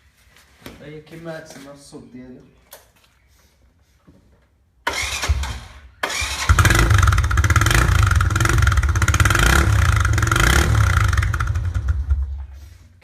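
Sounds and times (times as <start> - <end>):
motorcycle engine starting: 4.8 - 12.6
loud pulsing exhaust: 6.5 - 12.5.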